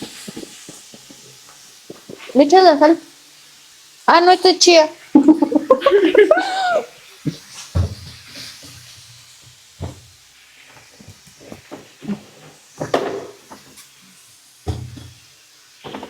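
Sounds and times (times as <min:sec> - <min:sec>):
containers and cupboard doors knocking: 0:14.7 - 0:15.1.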